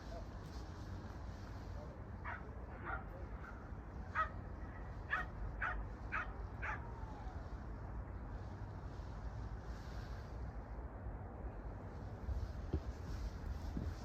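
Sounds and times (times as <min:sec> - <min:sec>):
dog barking: 0:02.2 - 0:04.4, 0:05.1 - 0:06.9.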